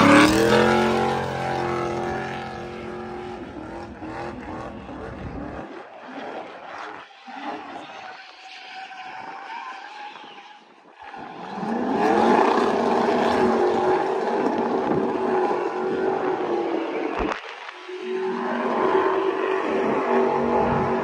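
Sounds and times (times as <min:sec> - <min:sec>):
race car engine revving: 0:00.0 - 0:05.6.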